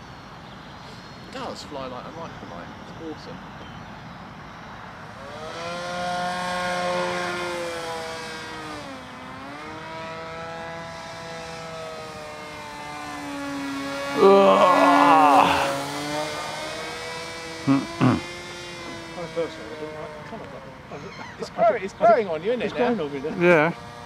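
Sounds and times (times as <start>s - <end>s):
model plane propeller buzzing: 5.0s - 24.0s.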